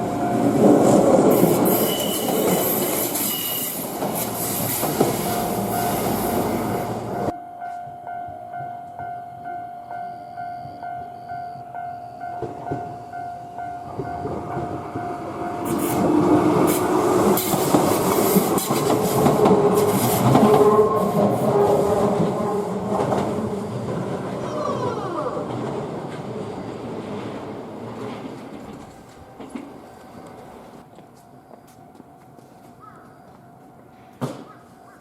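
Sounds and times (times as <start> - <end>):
train wheels clattering on rails: 0.0 - 9.1, 12.3 - 31.2.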